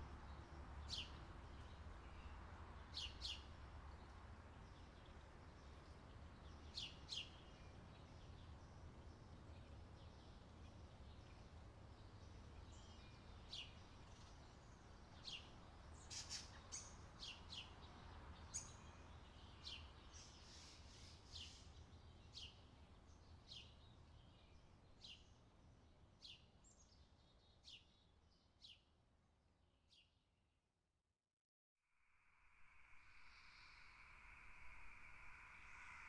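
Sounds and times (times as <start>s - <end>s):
bird chirping: 32.6s - 36.0s.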